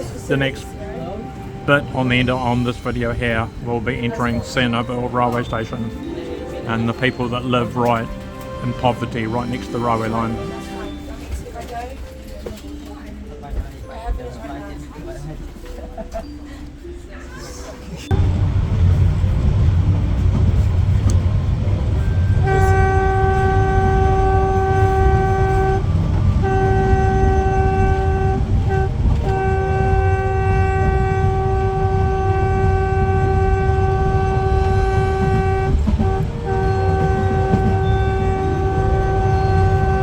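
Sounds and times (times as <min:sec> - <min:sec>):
moving train rumbling: 0:00.0 - 0:40.0
train horn blasts: 0:06.7 - 0:11.2, 0:21.9 - 0:40.0.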